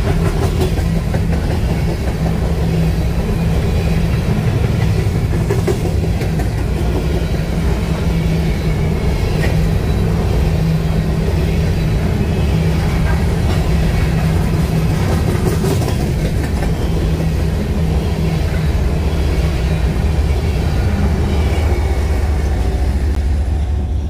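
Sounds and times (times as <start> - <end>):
wheels clattering over rail joints: 0.0 - 10.3, 11.2 - 17.6
freight train rumbling past: 0.0 - 24.0
locomotive engine: 0.0 - 24.0.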